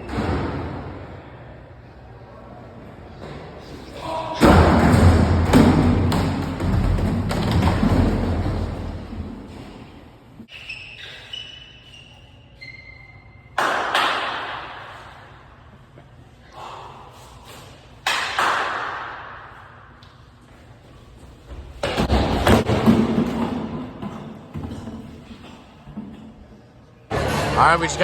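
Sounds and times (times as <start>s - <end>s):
loud slams echoing in a hall: 0.0s - 1.3s, 3.3s - 9.9s, 27.1s - 28.0s
short high squeaks: 10.5s - 13.5s.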